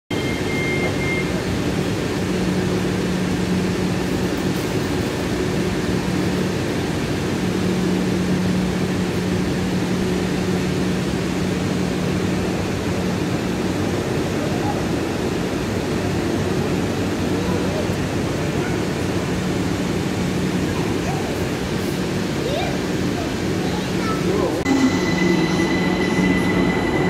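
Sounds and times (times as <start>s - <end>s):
idling electric train hum: 0.1s - 27.0s
low hum tone: 24.6s - 27.0s.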